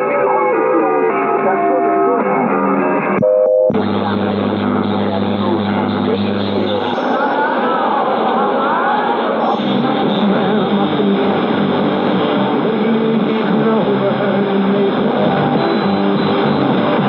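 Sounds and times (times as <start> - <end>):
music on muffled radio: 9.4 - 17.0.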